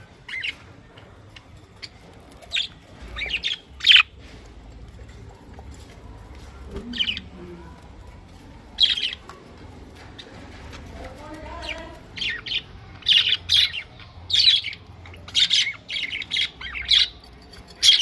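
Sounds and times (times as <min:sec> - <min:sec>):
budgerigars chirping: 0:00.1 - 0:04.3, 0:08.4 - 0:10.8, 0:11.4 - 0:18.0.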